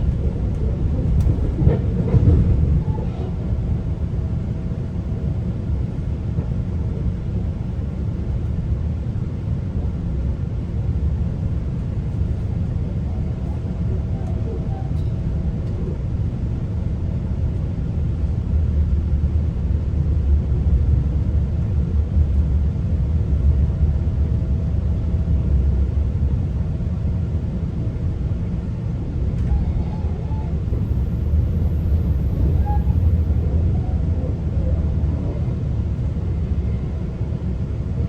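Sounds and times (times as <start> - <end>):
train wheels on rails: 0.0 - 3.4.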